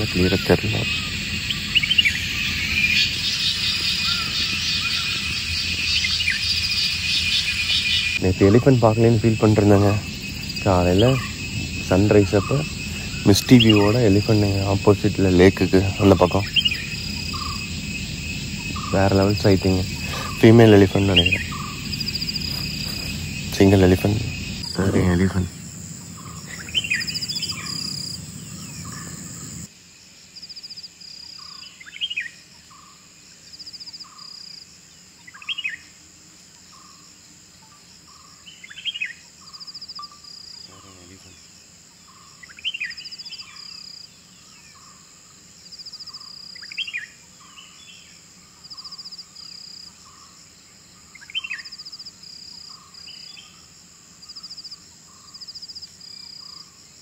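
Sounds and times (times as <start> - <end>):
bird call sweeping downward: 0.0 - 8.2, 26.2 - 29.7
small birds chirping: 0.0 - 29.7, 30.4 - 35.9, 36.6 - 56.8
high insect drone with trills: 0.0 - 57.0
low rumble: 0.8 - 29.7.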